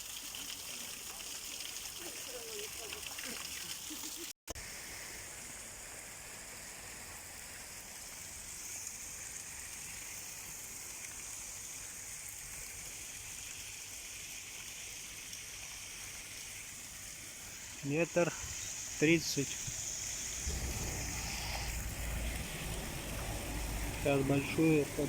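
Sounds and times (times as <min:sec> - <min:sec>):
sea surf washing in: 0:20.2 - 0:25.0.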